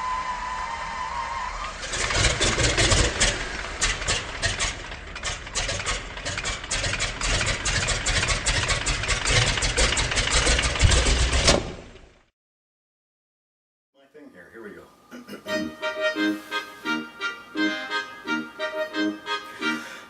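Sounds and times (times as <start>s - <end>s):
sharp engine pops: 9.3s - 12.0s.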